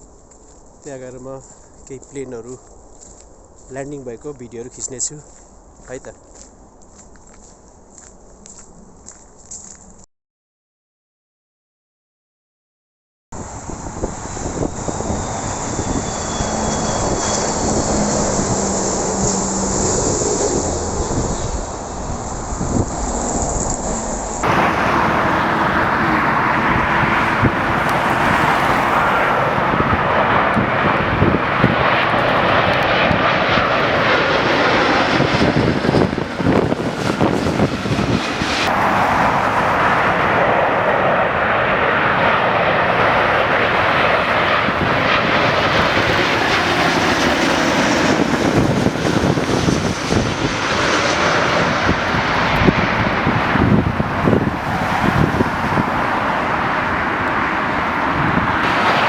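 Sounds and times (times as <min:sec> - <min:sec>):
jet engines rushing overhead: 0:13.4 - 0:59.0.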